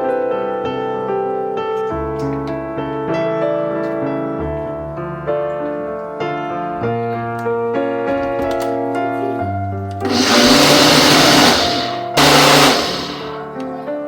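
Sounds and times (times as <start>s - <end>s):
soft piano music: 0.0s - 9.9s
kitchen blender running: 10.0s - 13.5s.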